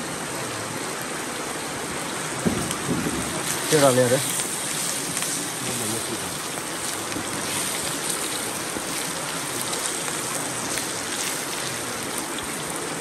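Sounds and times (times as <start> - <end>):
food sizzling in hot oil: 2.1 - 13.0.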